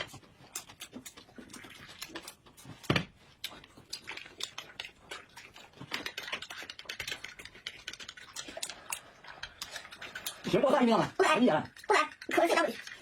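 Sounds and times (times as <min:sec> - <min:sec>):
crisp chewing: 0:00.0 - 0:13.0.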